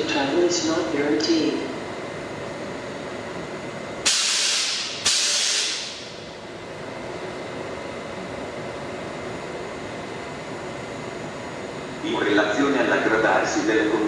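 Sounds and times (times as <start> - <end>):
station background noise: 0.0 - 14.0
compressed air hissing: 4.0 - 6.2.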